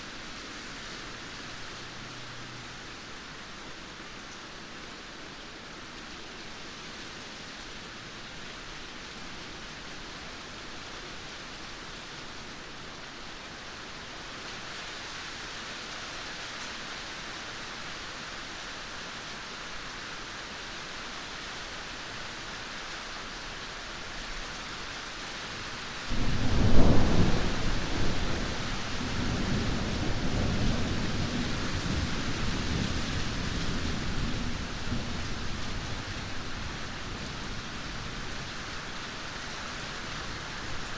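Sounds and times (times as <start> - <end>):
steady rain hiss: 0.0 - 40.9
thunder rumble: 26.1 - 38.2.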